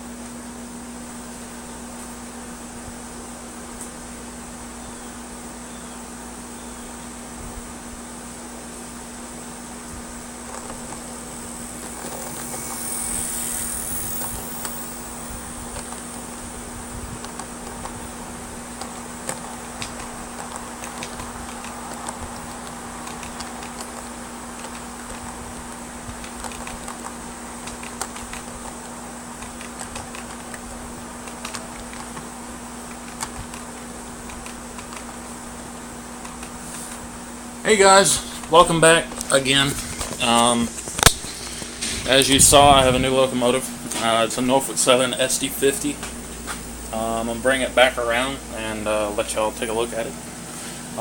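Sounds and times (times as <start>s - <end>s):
air conditioner hum: 0.0s - 51.0s
model locomotive running: 10.2s - 35.6s
wheels clicking on rails: 10.4s - 35.2s
model train hissing on track: 11.1s - 16.8s.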